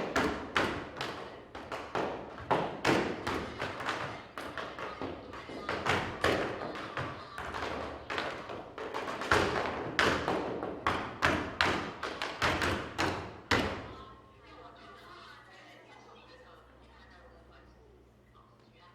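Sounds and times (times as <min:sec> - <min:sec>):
tap shoes striking floor: 0:00.0 - 0:14.0.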